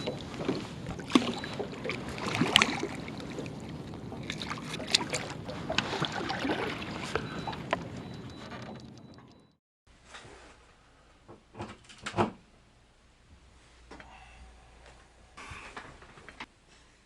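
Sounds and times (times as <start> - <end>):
water splashing: 0.0 - 9.3
outdoor background noise: 0.0 - 17.0.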